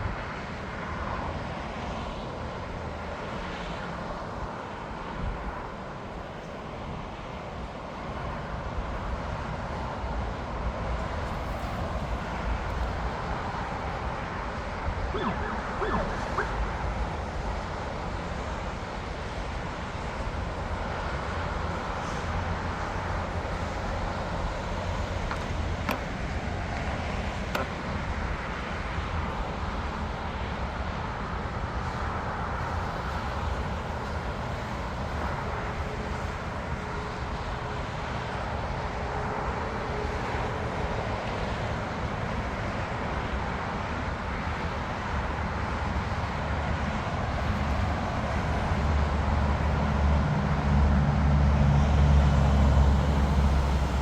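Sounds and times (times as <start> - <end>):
traffic rumble: 5.0 - 17.8, 20.5 - 29.5
distant jet engines: 15.1 - 17.2.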